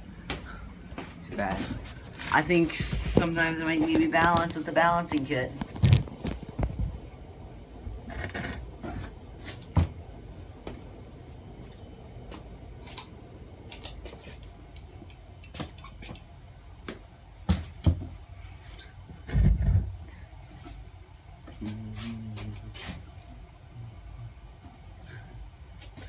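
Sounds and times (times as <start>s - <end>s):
ceiling fan rumbling: 0.0s - 26.0s
heavy thumps: 1.4s - 4.6s.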